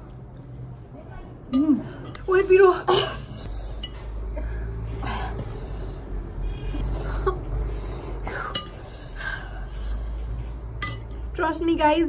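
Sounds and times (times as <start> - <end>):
steady low hum: 0.0 - 12.0
person breathing and sniffing: 3.2 - 10.7.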